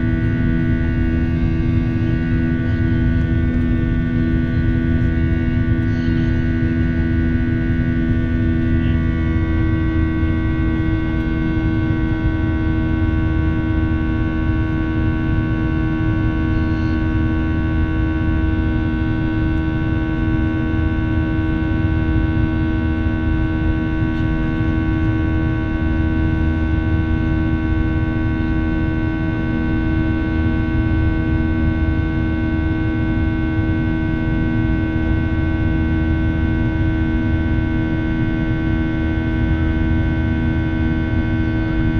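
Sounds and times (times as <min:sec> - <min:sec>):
jet engines droning in cabin: 0:00.0 - 0:41.9.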